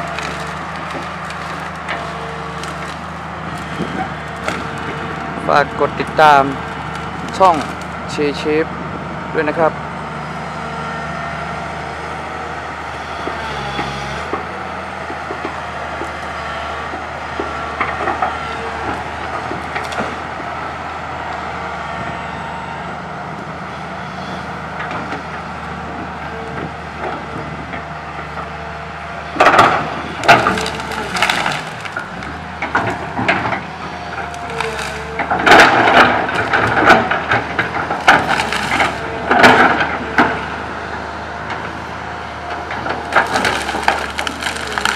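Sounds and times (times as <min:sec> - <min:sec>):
wood cracking and crashing: 0:00.0 - 0:08.3, 0:13.3 - 0:20.5, 0:29.4 - 0:40.5, 0:42.6 - 0:44.9
excavator diesel engine running: 0:00.0 - 0:44.9.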